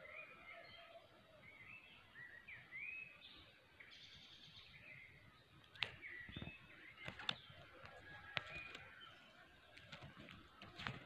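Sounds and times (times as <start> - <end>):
songbirds chirping faintly: 0.0 - 11.0.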